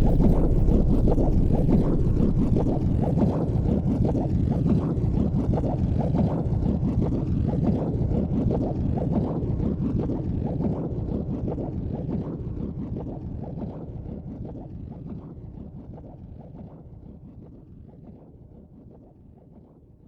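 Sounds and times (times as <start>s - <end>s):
helicopter engine and rotor: 0.0s - 3.8s.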